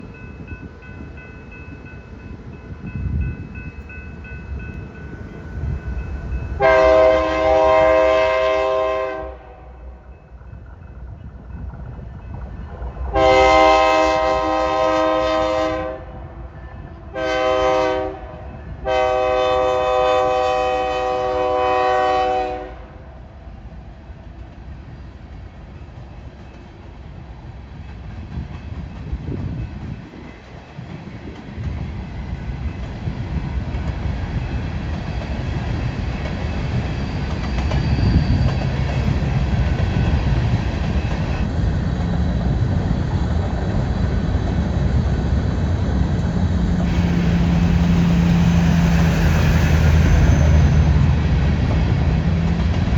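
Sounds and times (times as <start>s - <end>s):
train rumbling: 0.0s - 52.9s
locomotive air horn blasts: 6.6s - 9.8s, 13.1s - 23.2s, 46.8s - 50.9s.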